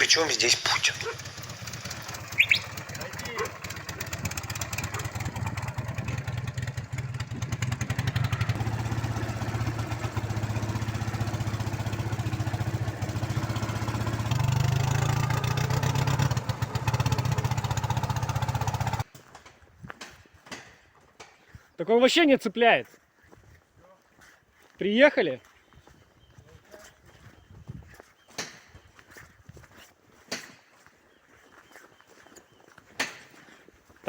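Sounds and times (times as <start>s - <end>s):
motorcycle engine running: 0.0s - 19.1s.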